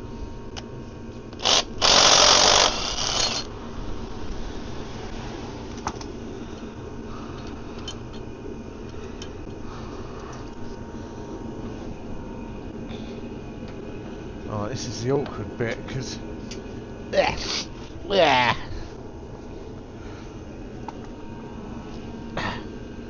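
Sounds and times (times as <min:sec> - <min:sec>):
cordless power tool spinning: 0:01.3 - 0:03.5.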